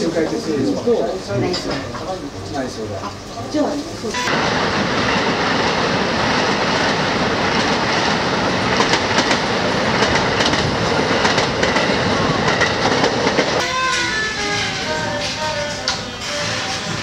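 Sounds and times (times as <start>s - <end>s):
electric train rumbling: 0.0s - 17.0s
wheels clacking over rail joints: 4.3s - 17.0s
background music indoors: 13.6s - 17.0s.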